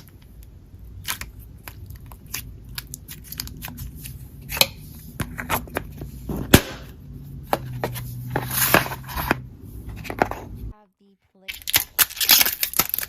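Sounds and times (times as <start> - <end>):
slime squishing: 0.0 - 6.8.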